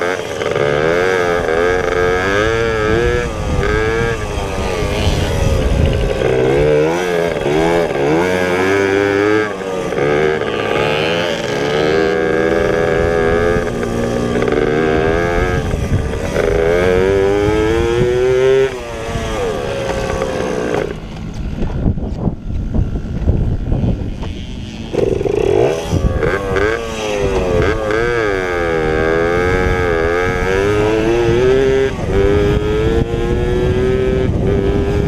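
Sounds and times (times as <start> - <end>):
pit bike engines running hard: 0.0 - 35.0.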